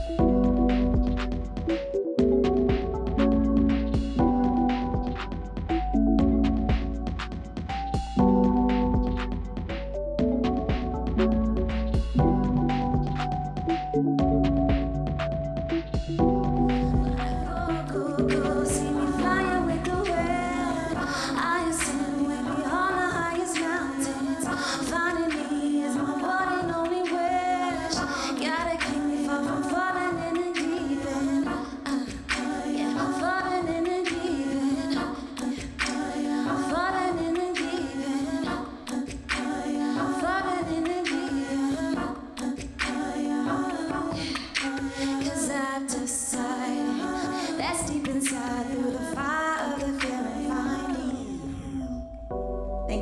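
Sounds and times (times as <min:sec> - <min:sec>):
voices singing a cappella: 0:00.0 - 0:52.3.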